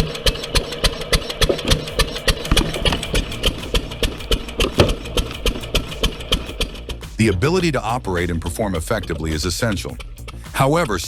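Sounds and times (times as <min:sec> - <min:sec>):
log splitter engine running: 0:01.2 - 0:07.5.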